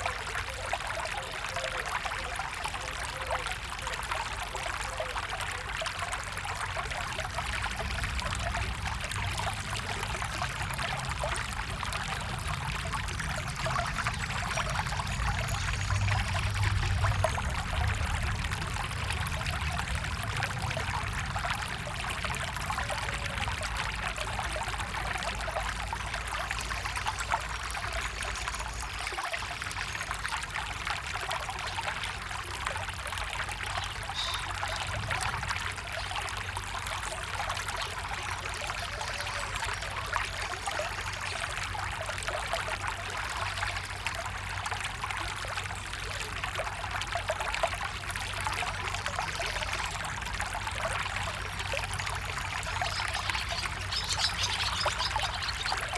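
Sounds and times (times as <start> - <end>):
stream water rushing: 0.0 - 55.9.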